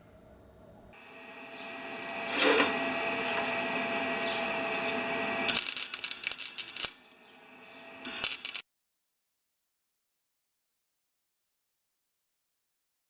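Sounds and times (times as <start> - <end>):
welder arc hissing: 1.0 - 8.6
welding crackling and popping: 4.6 - 7.2, 8.0 - 8.6.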